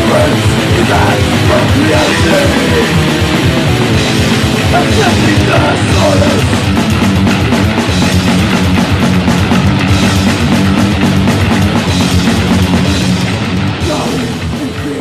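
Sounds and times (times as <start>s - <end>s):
fast drumming: 0.0s - 15.0s
metal band playing live: 0.0s - 15.0s.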